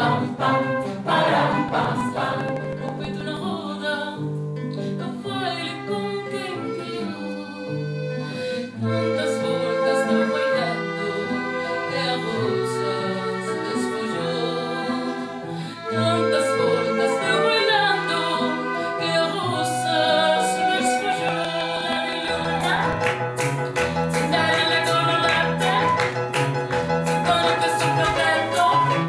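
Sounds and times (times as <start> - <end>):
sharp percussive taps: 21.3 - 29.0
held chords with melody: 21.7 - 29.0.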